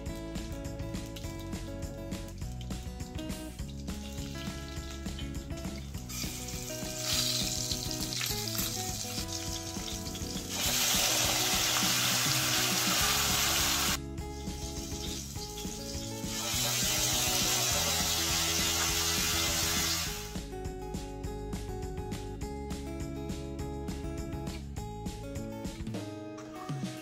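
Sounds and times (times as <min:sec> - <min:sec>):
hot oil sizzling: 0:00.0 - 0:20.4
paste poured into hot oil: 0:02.5 - 0:20.4.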